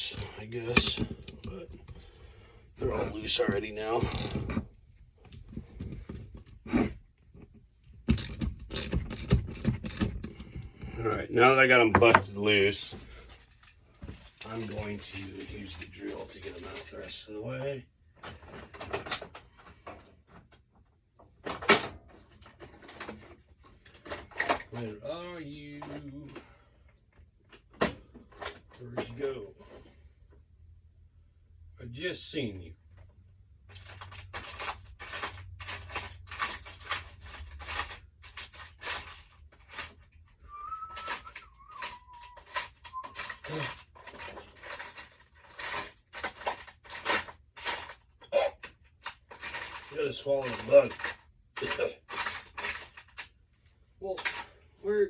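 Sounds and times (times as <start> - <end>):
tools clattering in toolbox: 0.0 - 11.0, 14.1 - 17.2, 18.2 - 20.4, 21.4 - 24.8, 33.6 - 53.4, 54.1 - 54.6.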